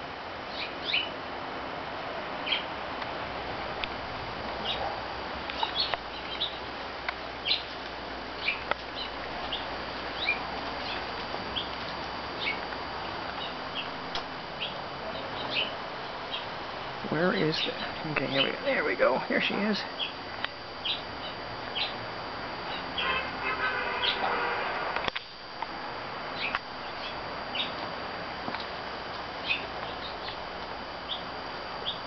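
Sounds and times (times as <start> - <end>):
steady background hiss: 0.0 - 32.0
small birds chirping: 0.4 - 1.2, 2.4 - 2.8, 4.5 - 23.3, 24.0 - 24.3, 26.3 - 27.9, 29.3 - 32.0.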